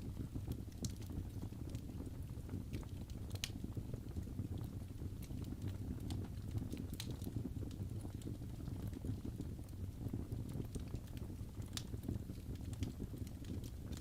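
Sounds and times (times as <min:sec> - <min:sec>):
fire crackling and popping: 0:00.0 - 0:14.0
low rumble of flames: 0:00.0 - 0:14.0.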